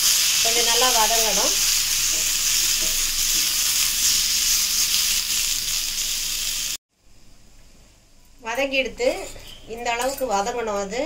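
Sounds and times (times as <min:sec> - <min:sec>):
vegetables sizzling in oil: 0:00.0 - 0:06.8.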